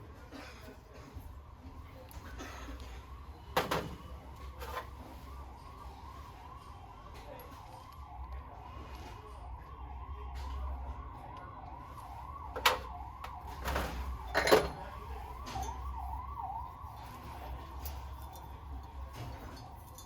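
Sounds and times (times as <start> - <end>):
warbling electronic siren tone: 4.2 - 20.0.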